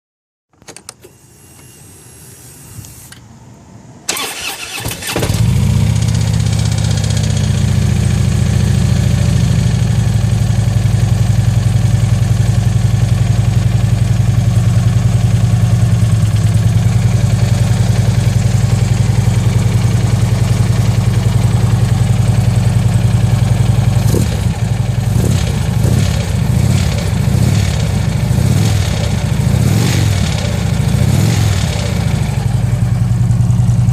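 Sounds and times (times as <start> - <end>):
motorcycle engine starter cranking: 4.1 - 5.7
motorcycle engine idling: 4.1 - 33.9.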